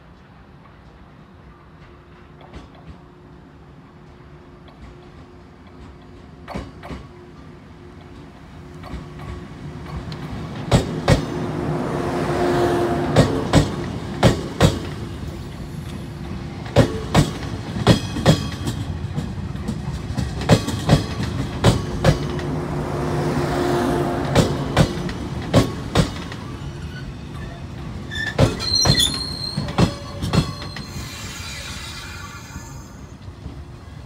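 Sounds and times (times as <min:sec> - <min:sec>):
train running rumble: 0:03.9 - 0:34.0
wheels clicking over rail joints: 0:13.2 - 0:22.6, 0:24.4 - 0:31.3
high wheel squeal: 0:26.4 - 0:33.2.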